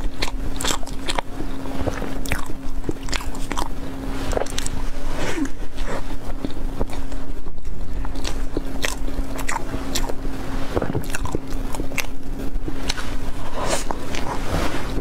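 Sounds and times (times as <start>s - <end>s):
person chewing food: 0.0s - 15.0s
steady low hum: 0.0s - 15.0s
mouth clicks and smacks: 6.3s - 10.2s.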